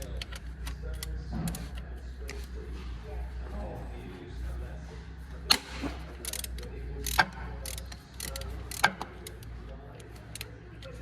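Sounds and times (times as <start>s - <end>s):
ratchet clicking: 0.0s - 2.4s, 5.5s - 11.0s.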